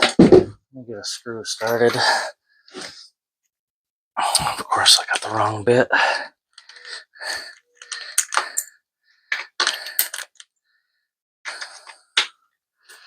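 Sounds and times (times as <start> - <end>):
small metal parts clicking: 6.6 - 10.5.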